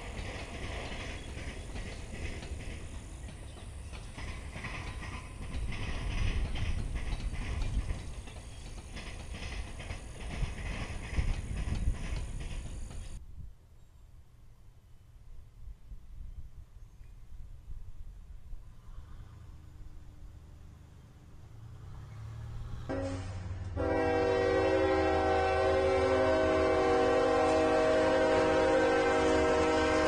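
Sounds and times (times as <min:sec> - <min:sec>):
train wheels clacking over track: 0:00.0 - 0:13.2.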